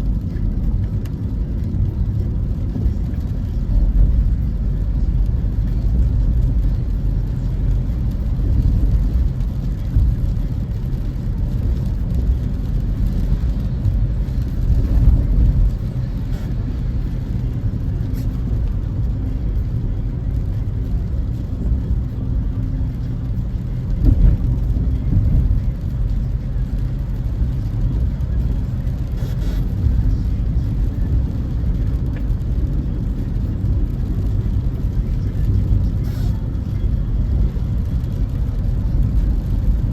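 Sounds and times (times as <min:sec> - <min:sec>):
car interior road rumble: 0:00.0 - 0:39.9.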